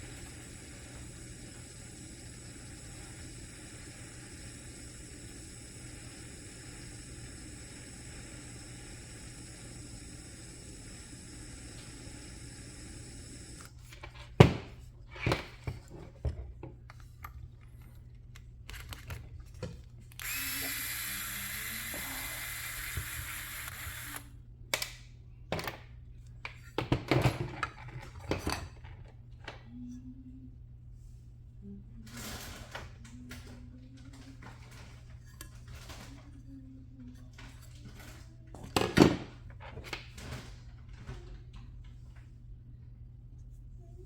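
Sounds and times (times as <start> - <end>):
torch flame hissing: 0.0 - 13.7, 20.2 - 24.3.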